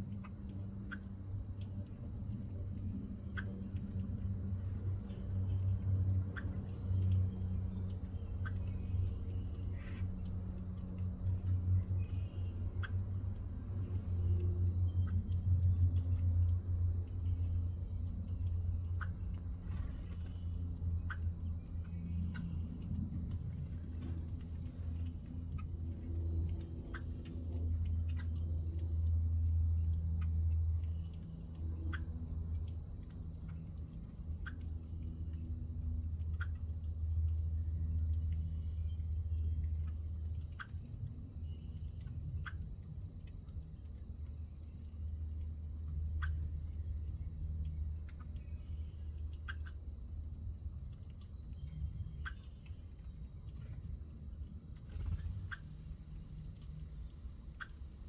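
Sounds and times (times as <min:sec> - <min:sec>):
small birds chirping: 0:00.0 - 0:58.0
steady low rumble: 0:00.0 - 0:58.0
high insect drone: 0:41.2 - 0:58.0.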